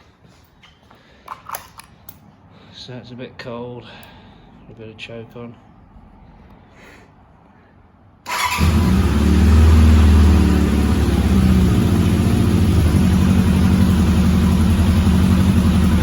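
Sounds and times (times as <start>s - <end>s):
starter motor cranking: 8.3s - 9.7s
motorcycle engine idling: 8.3s - 16.0s.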